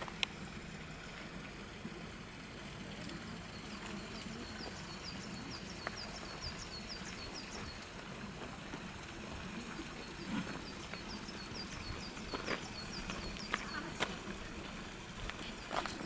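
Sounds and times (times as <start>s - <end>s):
outdoor background hiss: 0.0s - 16.0s
small bird chirping: 10.1s - 14.2s.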